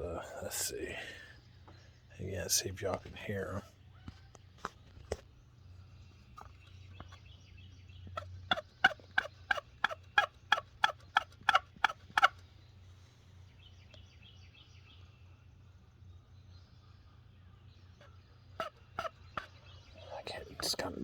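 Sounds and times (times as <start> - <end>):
faint bird chirping: 0.0 - 21.0
loud turkey yelps: 8.2 - 12.4, 18.0 - 19.6.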